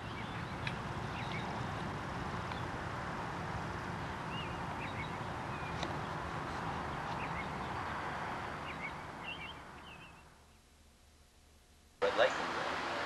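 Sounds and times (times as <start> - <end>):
small birds chirping: 0.0 - 2.9, 3.7 - 10.7.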